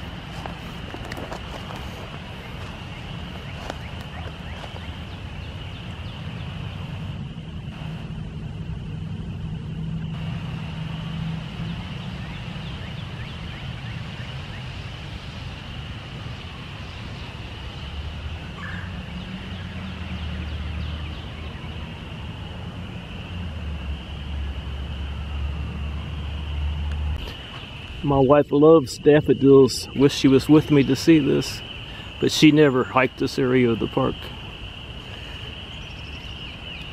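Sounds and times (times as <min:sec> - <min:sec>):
spring peepers chorus: 0:00.0 - 0:36.9
low rumble: 0:05.0 - 0:27.9.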